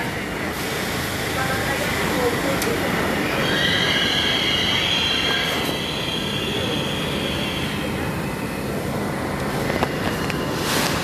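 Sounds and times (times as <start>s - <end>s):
subway train rumbling on rails: 0.0s - 11.0s
train wheels squealing: 3.0s - 8.3s.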